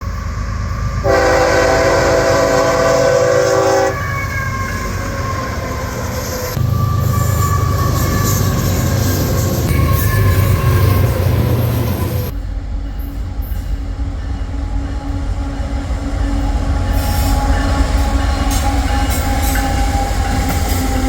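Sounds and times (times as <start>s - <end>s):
diesel locomotive rumble: 0.0s - 21.0s
train rolling past: 0.0s - 21.0s
train horn chord: 1.0s - 4.6s.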